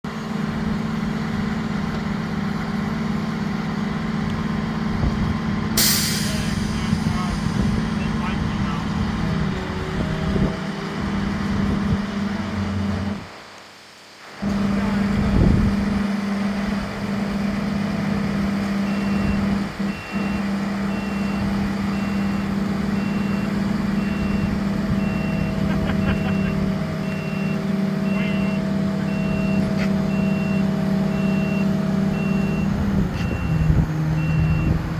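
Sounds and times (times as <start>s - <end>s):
heavy vehicle engine idling: 0.1s - 13.4s, 14.4s - 34.9s
reversing alarm beeping: 5.8s - 9.0s, 18.8s - 34.8s.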